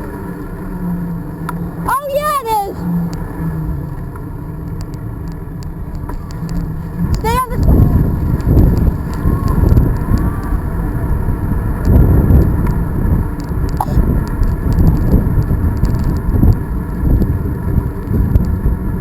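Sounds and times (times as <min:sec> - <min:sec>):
bicycle clicks and rattles: 0:03.0 - 0:10.7, 0:11.3 - 0:18.9
wind buffeting microphone: 0:05.4 - 0:19.0.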